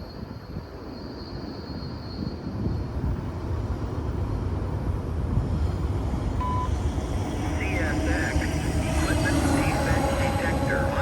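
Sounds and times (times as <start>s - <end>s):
freight train rumble: 0.0s - 11.0s
short beep: 6.4s - 6.7s.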